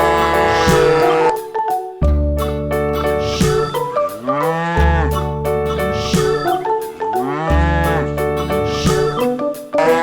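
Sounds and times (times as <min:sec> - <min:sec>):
cow mooing: 0:00.0 - 0:01.4, 0:04.2 - 0:06.1, 0:07.2 - 0:08.7, 0:09.8 - 0:10.0
background music: 0:00.0 - 0:10.0.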